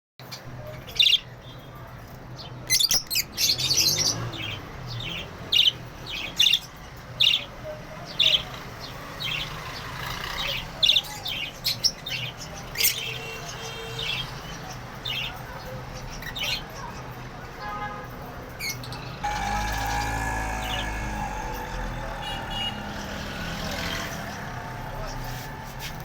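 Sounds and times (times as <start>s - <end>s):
budgerigars chirping: 18.7s - 23.2s.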